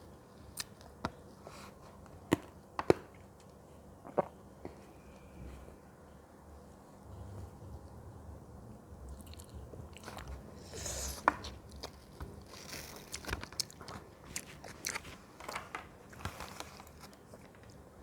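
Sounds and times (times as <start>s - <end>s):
person chewing crunchy fruit: 9.1s - 15.2s.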